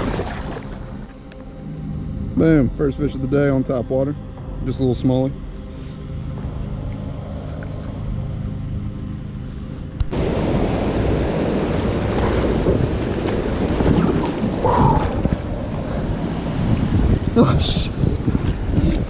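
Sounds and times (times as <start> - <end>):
moving water: 0.0 - 1.4, 10.1 - 19.0
wind buffeting microphone: 10.0 - 19.0.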